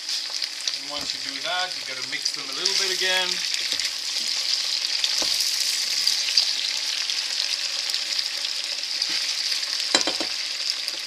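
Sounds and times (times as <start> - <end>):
vegetables sizzling in oil: 0.0 - 11.0
knock on pot: 9.9 - 10.4.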